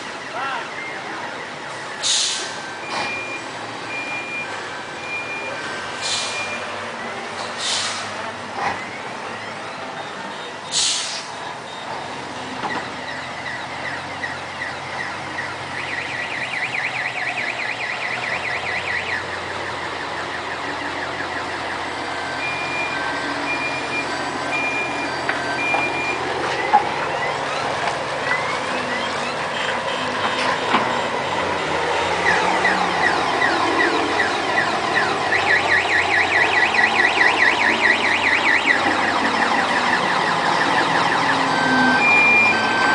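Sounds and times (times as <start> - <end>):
truck diesel engine running: 0.0 - 42.9
on-off beeps: 1.9 - 5.6, 22.4 - 26.8, 32.2 - 42.9
air brake hiss: 2.0 - 2.6, 6.0 - 6.4, 7.6 - 8.1, 10.7 - 11.3.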